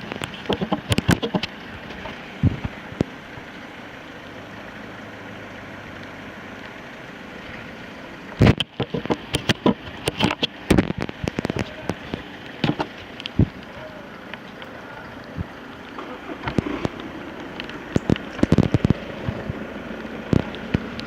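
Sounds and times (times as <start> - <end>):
heavy rain hissing: 0.0 - 21.0
loud pops and knocks on microphone: 8.4 - 11.9, 18.0 - 19.1.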